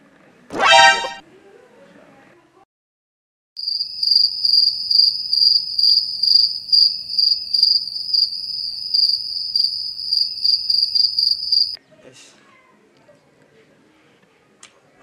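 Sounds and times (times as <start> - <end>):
cricket chirping: 3.6 - 11.8.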